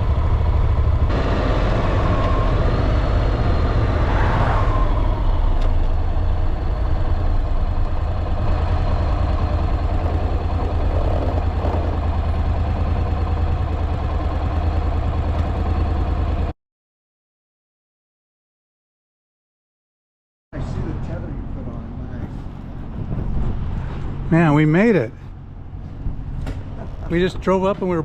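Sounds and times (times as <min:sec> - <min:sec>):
motorcycle engine: 0:00.0 - 0:16.5
wind noise on microphone: 0:22.8 - 0:24.3.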